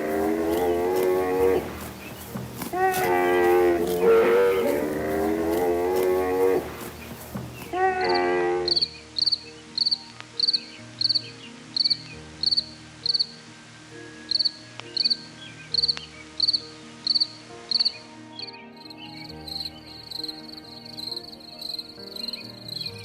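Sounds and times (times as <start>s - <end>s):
cricket chirping: 0.0s - 13.4s, 14.3s - 18.0s, 18.9s - 23.0s
fast dense insect trill: 0.0s - 13.4s.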